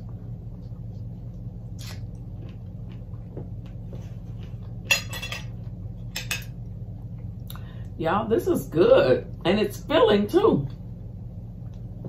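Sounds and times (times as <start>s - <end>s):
person chewing fruit: 0.0s - 4.9s
steady low hum: 0.0s - 12.0s.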